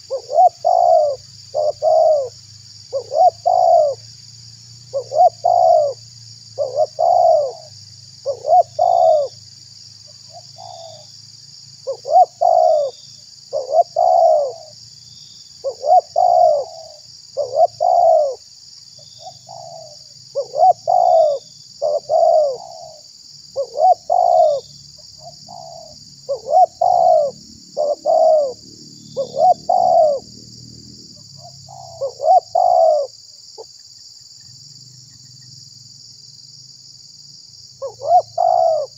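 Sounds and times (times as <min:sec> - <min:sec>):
dove cooing: 0:00.0 - 0:04.0, 0:04.9 - 0:06.0, 0:06.6 - 0:09.4, 0:10.3 - 0:11.1, 0:11.8 - 0:14.7, 0:15.6 - 0:18.4, 0:19.2 - 0:23.0, 0:23.6 - 0:30.3, 0:31.2 - 0:33.7, 0:37.8 - 0:38.9.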